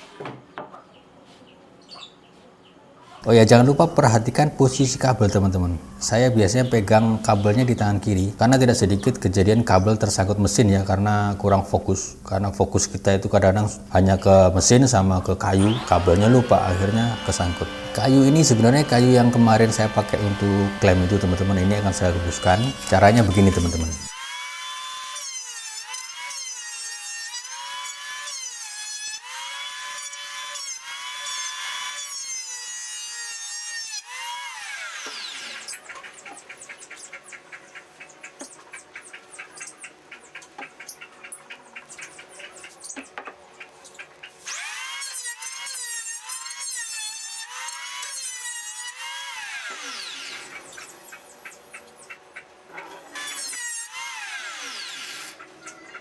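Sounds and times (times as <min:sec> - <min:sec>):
electric planer whining: 0:15.0 - 0:26.5.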